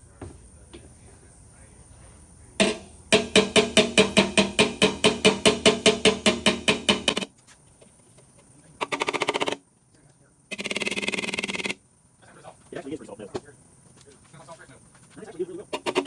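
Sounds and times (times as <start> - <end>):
hammer tapping metal fender: 2.6 - 7.3.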